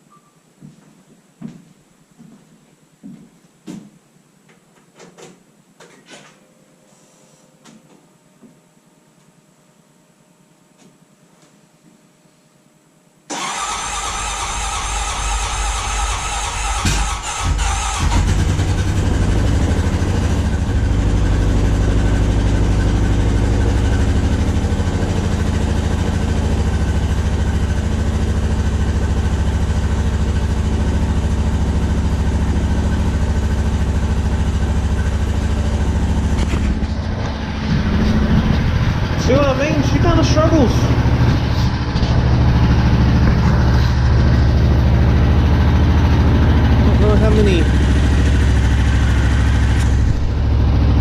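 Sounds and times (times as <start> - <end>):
engine starter cranking: 13.3 - 19.0
engine idling: 13.3 - 51.0.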